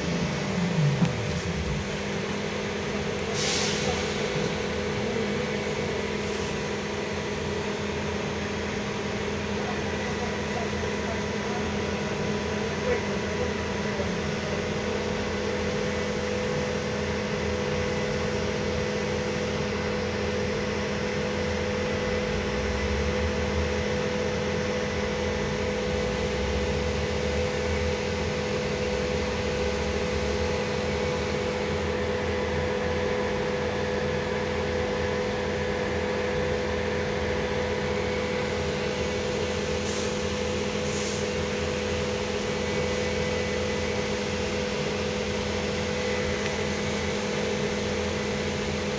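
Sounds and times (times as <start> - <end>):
low rumble: 0.0 - 2.9
trolleybus electrical hum: 0.0 - 48.9.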